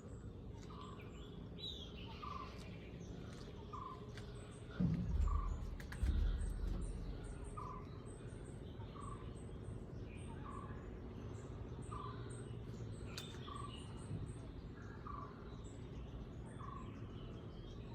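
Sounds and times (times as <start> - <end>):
loud low rumbles: 3.1 - 8.6.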